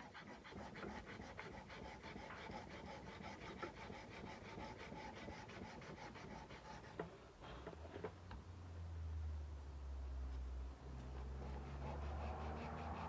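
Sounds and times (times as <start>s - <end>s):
sandpaper rubbing steel blade: 11.4s - 13.0s.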